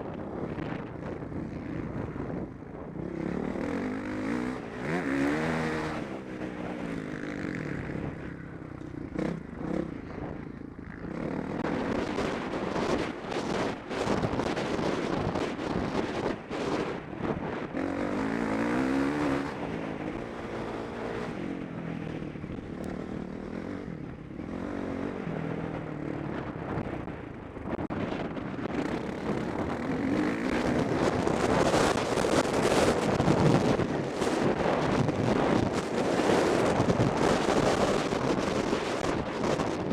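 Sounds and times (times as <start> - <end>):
wind rush over microphone: 0.0 - 8.5, 9.1 - 39.9
motocross bike engine revving: 3.1 - 8.2, 17.7 - 21.4.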